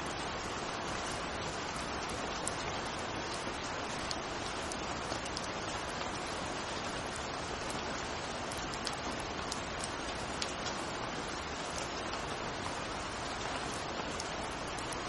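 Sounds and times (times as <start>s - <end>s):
steady rain hiss: 0.0s - 15.0s
raindrops ticking: 0.1s - 15.0s.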